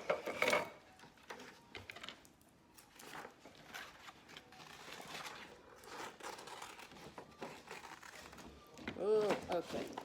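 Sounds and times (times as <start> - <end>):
paper and tape rustling: 2.8 - 10.0.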